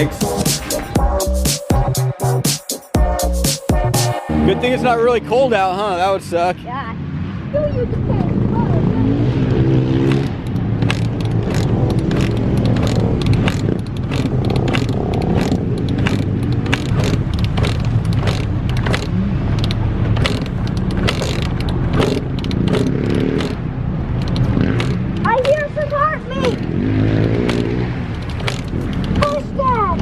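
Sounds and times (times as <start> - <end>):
vehicle engine running: 3.0 - 30.0
sharp clicks and crackles: 9.4 - 30.0.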